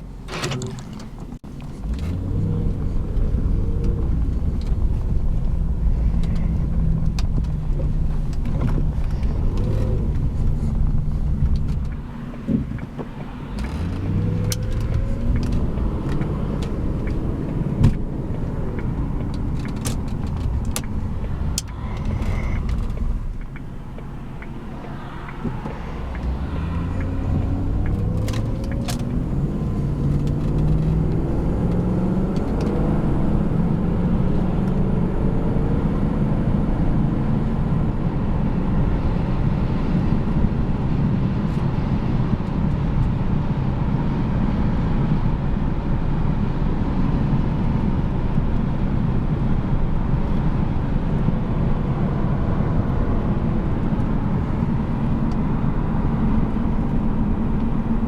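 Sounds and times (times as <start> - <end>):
car engine accelerating: 0.0 - 58.0
road noise: 0.0 - 58.0.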